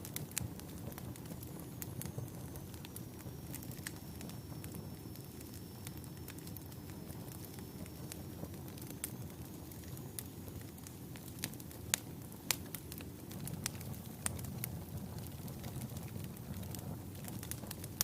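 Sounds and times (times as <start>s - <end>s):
fire crackling and popping: 0.0s - 18.0s.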